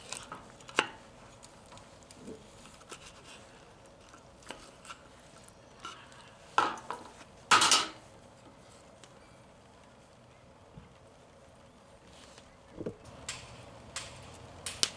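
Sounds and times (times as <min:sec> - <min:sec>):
metal utensils clinking on cookware: 0:06.6 - 0:08.0.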